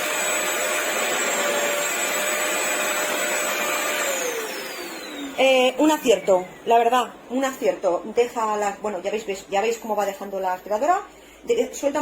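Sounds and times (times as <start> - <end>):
vacuum motor whining: 0.0 - 7.1.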